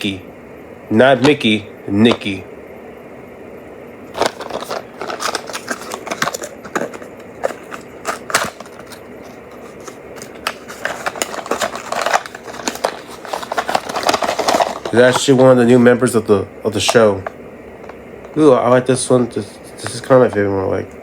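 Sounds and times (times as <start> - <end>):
plastic toy clicks and crinkles: 9.7 - 15.4.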